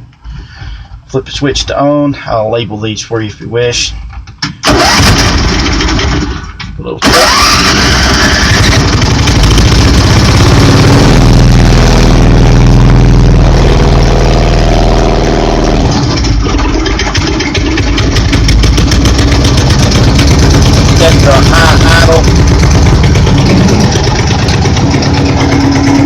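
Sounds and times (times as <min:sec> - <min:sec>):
small engine high idle: 0:07.1 - 0:26.0.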